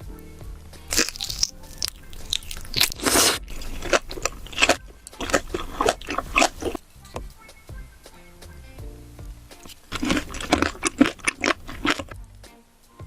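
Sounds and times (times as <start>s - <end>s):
crunchy chewing: 0.9s - 6.8s, 9.6s - 12.2s.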